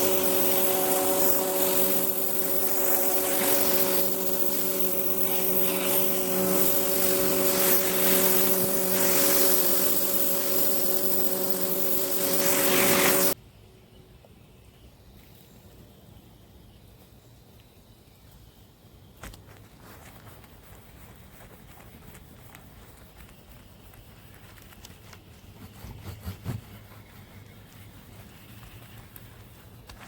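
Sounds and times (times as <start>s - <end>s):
pressure washer running: 0.0s - 13.4s.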